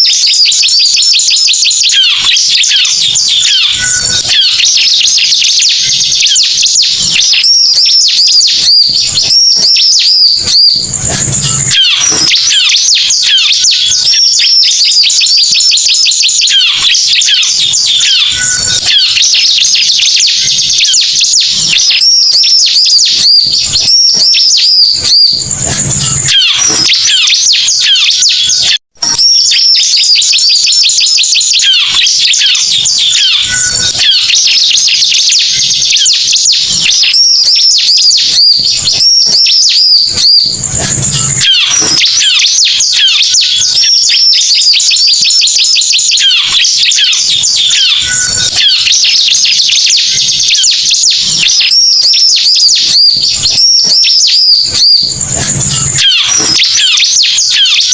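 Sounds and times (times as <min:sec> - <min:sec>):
bird chirping and trilling: 0:00.0 - 0:57.9.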